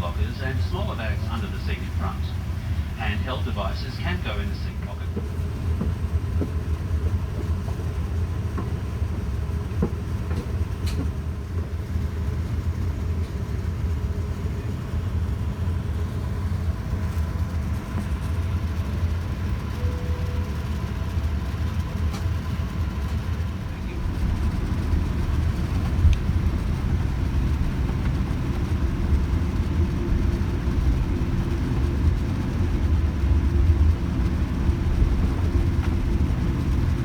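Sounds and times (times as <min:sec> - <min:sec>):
airplane cabin rumble: 0:00.0 - 0:37.0
brief faint tone: 0:19.8 - 0:20.6.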